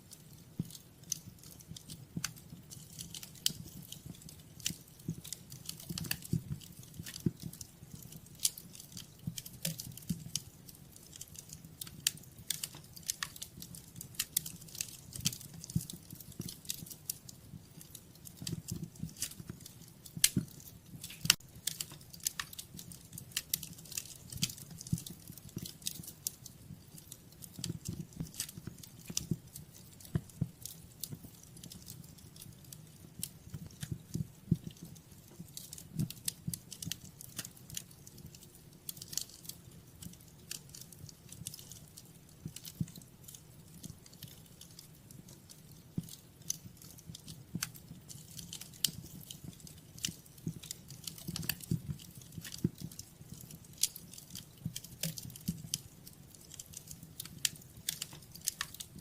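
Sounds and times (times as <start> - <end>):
low rumble of flames: 0.0 - 59.0
sharp pops and snaps: 0.0 - 59.0
wood fire crackling: 0.0 - 59.0.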